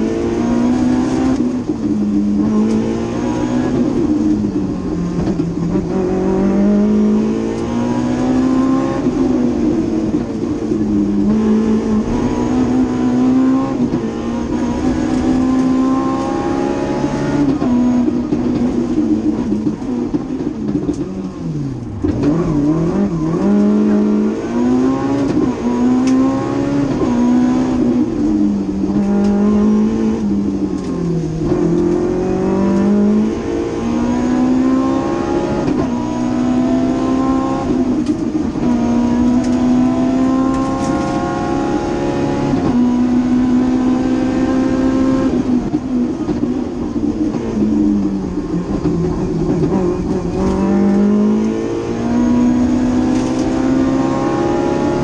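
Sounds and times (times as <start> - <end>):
car engine revving through gears: 0.0 - 55.0.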